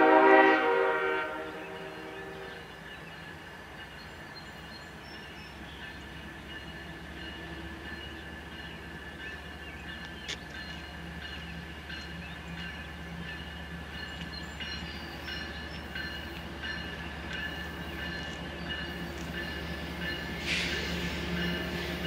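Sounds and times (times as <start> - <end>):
train rolling by: 0.0 - 22.0.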